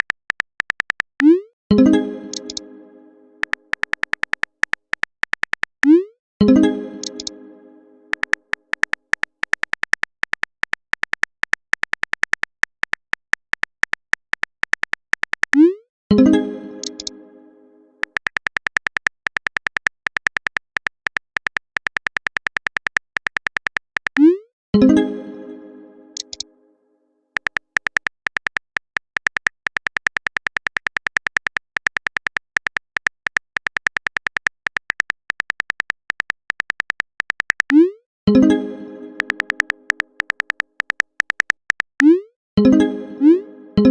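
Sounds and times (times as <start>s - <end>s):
smartphone keyboard typing clicks: 0.0s - 1.5s, 2.3s - 2.6s, 3.4s - 6.1s, 7.0s - 7.3s, 8.1s - 15.7s, 16.8s - 17.1s, 18.0s - 24.4s, 26.2s - 26.4s, 27.4s - 37.9s, 39.2s - 42.2s
short clicky beeps: 2.3s - 2.6s, 7.0s - 7.4s, 26.2s - 26.4s.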